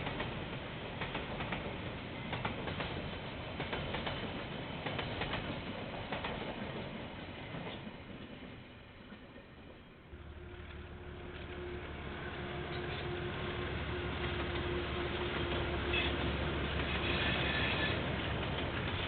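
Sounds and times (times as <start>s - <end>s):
train wheels clattering: 0.0s - 6.9s
train rumbling past: 0.0s - 19.0s.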